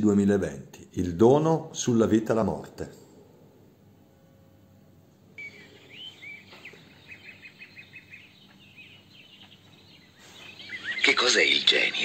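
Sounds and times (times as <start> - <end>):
low outdoor hum: 0.0 - 12.0
small birds chirping faintly: 5.2 - 12.0.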